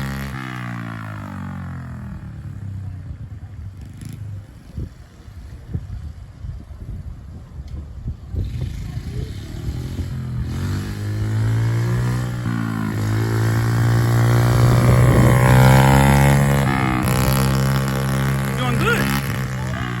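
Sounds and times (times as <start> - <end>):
small motorbike engine running: 8.4 - 20.0.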